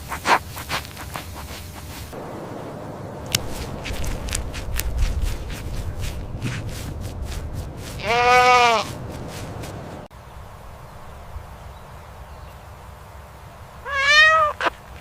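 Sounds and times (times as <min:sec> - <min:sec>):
animal bleat: 0:08.0 - 0:08.9, 0:13.8 - 0:14.8.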